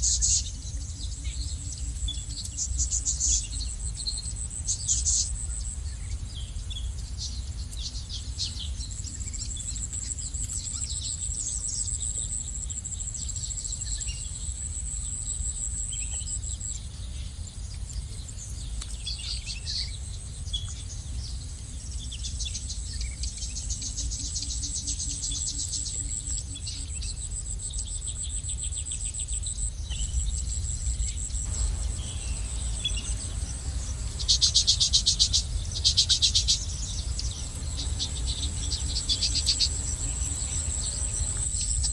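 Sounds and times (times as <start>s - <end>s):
insects trilling: 0.0s - 41.9s
low steady rumble: 0.0s - 41.9s
small birds chirping: 0.0s - 41.9s
rapid pulsing trill: 31.4s - 41.9s.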